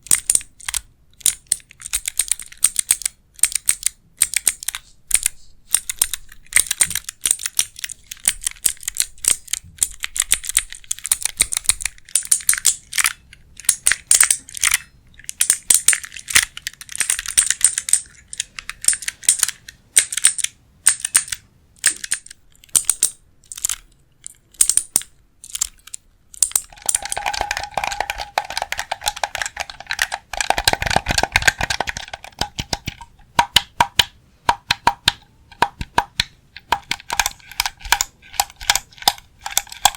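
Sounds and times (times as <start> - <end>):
fingernail tapping on hard objects: 26.5 - 39.9.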